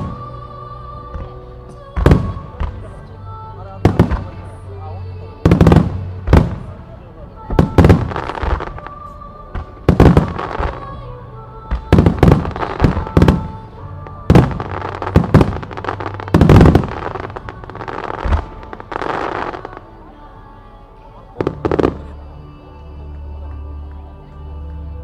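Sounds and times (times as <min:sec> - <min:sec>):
music: 0:00.0 - 0:25.0
firework crackling rush: 0:07.5 - 0:10.9, 0:11.7 - 0:19.9
firework bangs: 0:11.7 - 0:13.6, 0:14.3 - 0:19.5.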